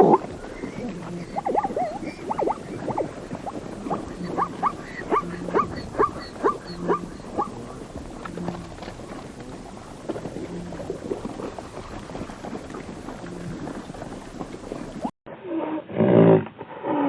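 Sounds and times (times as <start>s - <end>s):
animal short rising calls: 0.0s - 7.6s.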